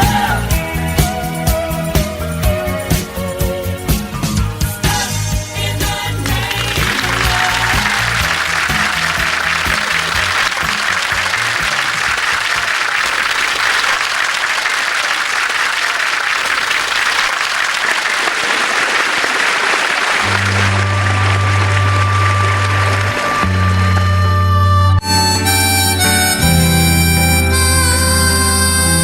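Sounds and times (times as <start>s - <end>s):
song ending: 5.6s - 11.3s
audience applauding: 6.1s - 24.4s.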